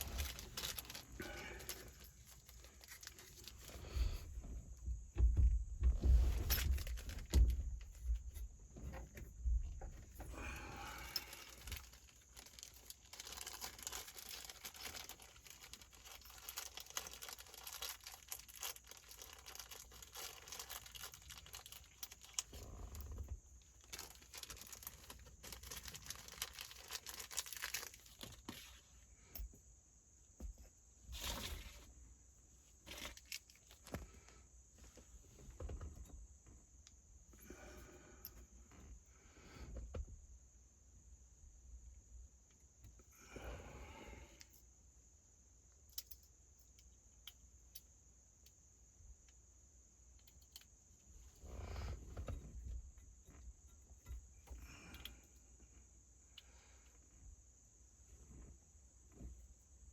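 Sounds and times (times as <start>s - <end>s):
hands rustling and scraping parts: 0.0s - 29.6s, 32.7s - 37.0s.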